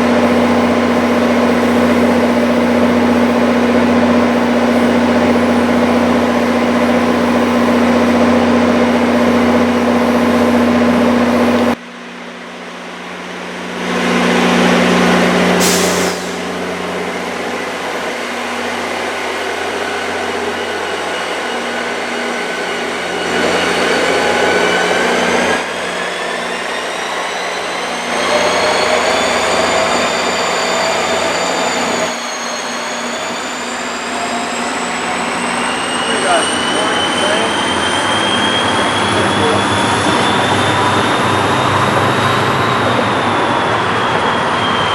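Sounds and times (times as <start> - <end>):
train engine hum: 0.0 - 44.9
train motor whine rising: 0.0 - 44.9
air brake hiss: 15.6 - 16.6.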